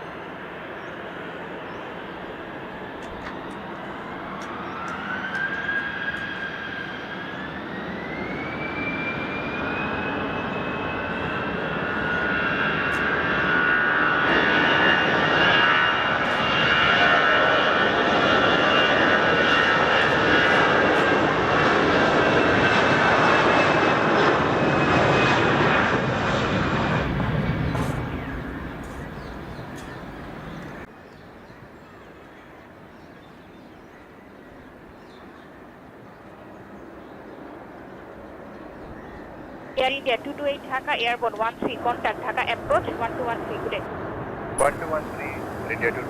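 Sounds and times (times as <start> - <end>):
jet engines spooling up: 2.7 - 30.9, 44.6 - 46.0.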